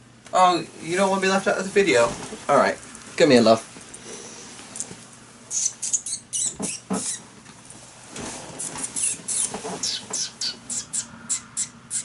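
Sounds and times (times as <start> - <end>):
person making squeaky mouth noises: 5.5 - 7.2, 8.6 - 12.0.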